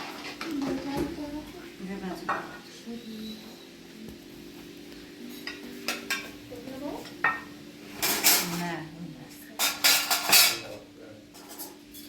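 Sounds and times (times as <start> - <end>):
dishes and cutlery clinking: 2.1 - 3.7, 5.1 - 8.9, 9.5 - 12.0.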